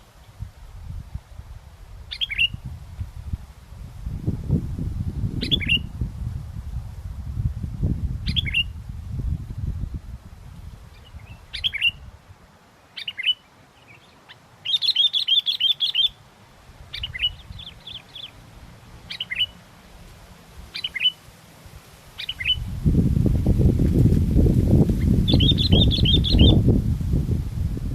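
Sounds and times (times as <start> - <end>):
wind buffeting microphone: 0.3 - 12.5, 16.7 - 19.3, 21.7 - 27.9
bird whistled chirps: 2.1 - 2.6, 5.4 - 5.9, 8.3 - 8.7, 11.0 - 12.0, 13.0 - 13.9, 14.6 - 16.2, 16.9 - 18.3, 19.1 - 19.6, 20.8 - 21.2, 22.2 - 22.6, 25.0 - 26.6.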